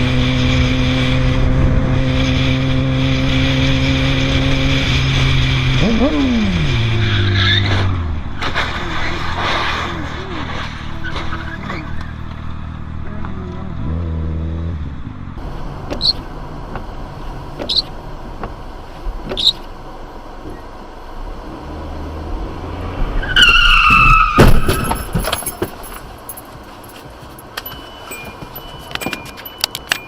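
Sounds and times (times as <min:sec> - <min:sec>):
car engine humming: 0:00.0 - 0:30.0
car tyres squealing: 0:06.8 - 0:12.6, 0:15.4 - 0:20.8, 0:22.2 - 0:30.0
crash impact with clattering debris: 0:23.9 - 0:26.0.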